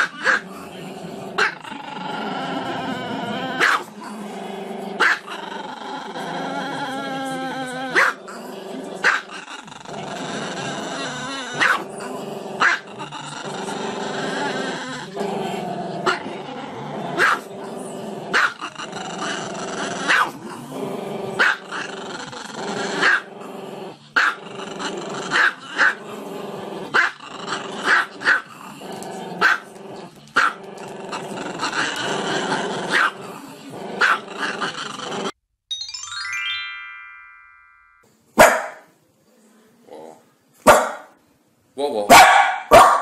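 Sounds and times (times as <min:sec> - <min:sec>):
dog growling: 0:00.0 - 0:35.4, 0:39.3 - 0:40.3
dog barking: 0:03.6 - 0:03.9, 0:05.0 - 0:05.3, 0:08.0 - 0:08.2, 0:11.6 - 0:11.8, 0:12.6 - 0:12.8, 0:17.2 - 0:17.5, 0:18.3 - 0:18.6, 0:20.1 - 0:20.4, 0:21.4 - 0:21.6, 0:23.0 - 0:23.2, 0:27.9 - 0:28.4, 0:29.4 - 0:29.7, 0:32.9 - 0:33.2, 0:34.0 - 0:34.2, 0:38.4 - 0:38.9, 0:40.6 - 0:41.2, 0:42.1 - 0:43.0.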